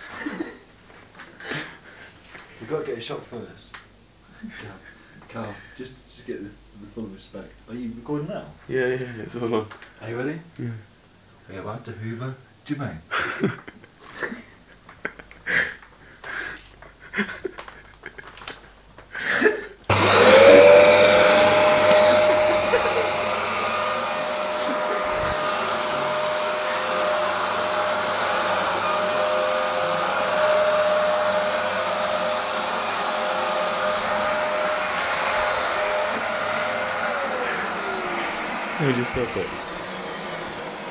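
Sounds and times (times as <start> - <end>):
vacuum cleaner motor whine: 19.9 - 40.9.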